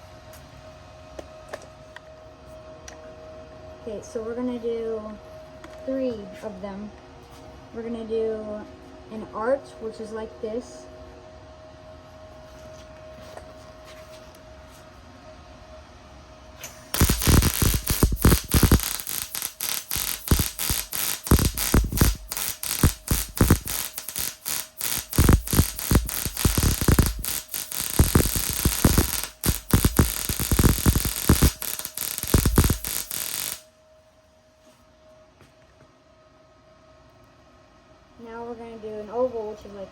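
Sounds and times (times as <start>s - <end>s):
welding arc crackling: 16.8s - 33.6s.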